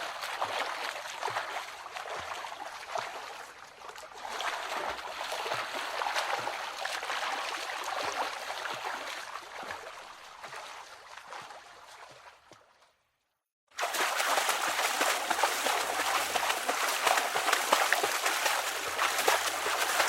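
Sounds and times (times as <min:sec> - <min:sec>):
running water: 0:13.7 - 0:20.0.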